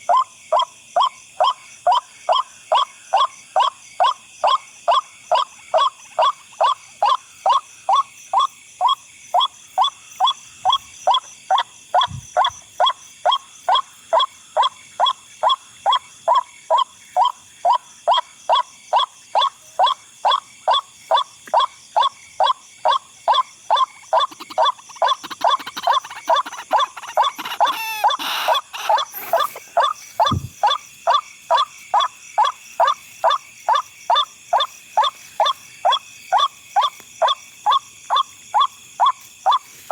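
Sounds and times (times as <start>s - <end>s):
waterhen calling: 23.3s - 33.4s
dull thump: 30.2s - 30.6s.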